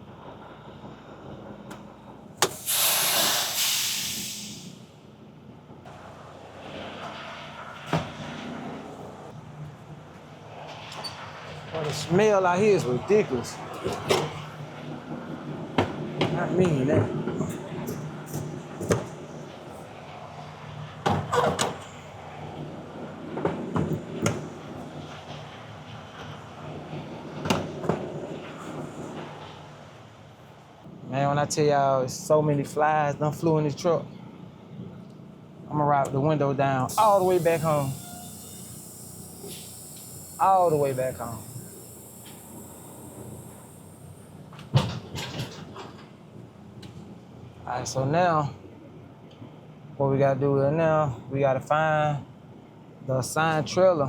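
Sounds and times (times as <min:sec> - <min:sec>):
air brake hiss: 0:02.4 - 0:05.0, 0:36.9 - 0:44.5
truck engine idling: 0:36.9 - 0:44.4.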